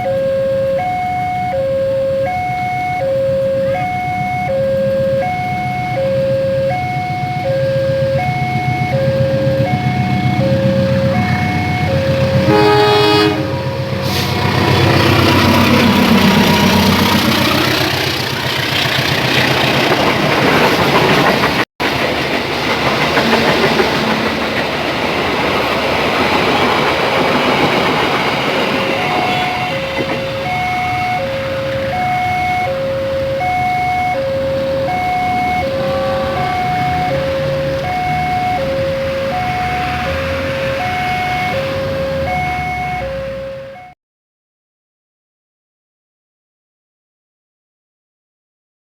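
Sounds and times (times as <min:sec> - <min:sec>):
passing train: 0:00.0 - 0:43.9
train horn: 0:09.2 - 0:18.1, 0:28.9 - 0:31.0, 0:35.0 - 0:38.0.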